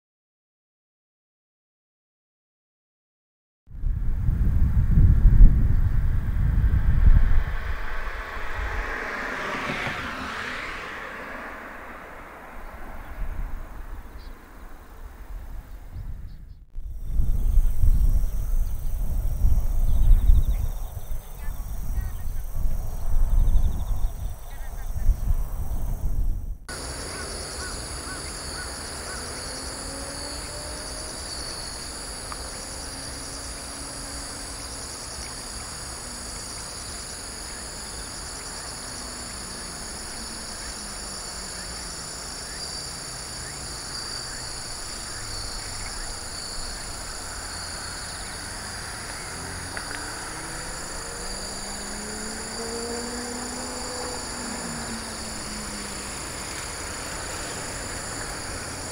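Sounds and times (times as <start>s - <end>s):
distant traffic hum: 4.0s - 58.9s
insects trilling: 16.8s - 58.9s.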